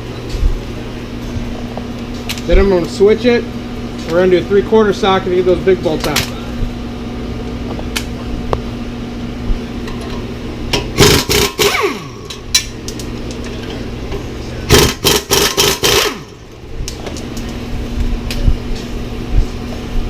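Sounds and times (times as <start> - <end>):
steady hum: 0.0 - 20.0
tool whine spinning down: 11.0 - 12.5, 14.7 - 16.5
air ratchet running: 11.0 - 12.6, 14.7 - 16.5.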